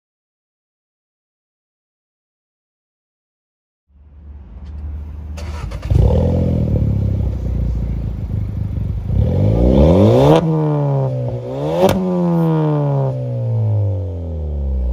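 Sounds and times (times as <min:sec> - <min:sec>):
car engine revving: 0:03.9 - 0:14.9.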